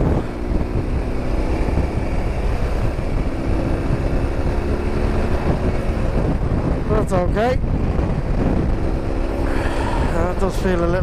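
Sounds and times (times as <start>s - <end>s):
motorcycle engine cruising: 0.0s - 11.0s
wind and road noise: 0.0s - 11.0s.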